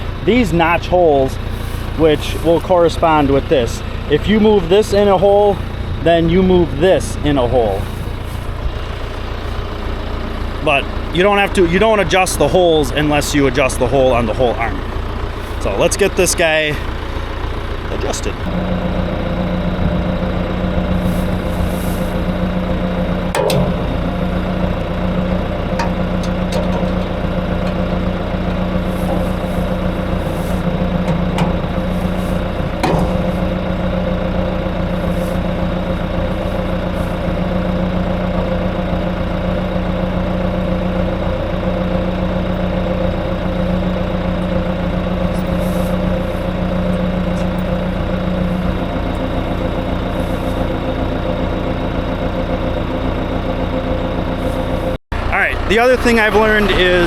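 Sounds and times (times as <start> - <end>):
tractor engine idling: 0.0 - 57.0
sharp clicks and knocks: 23.3 - 24.2, 24.8 - 28.0, 30.9 - 31.8, 32.6 - 33.6.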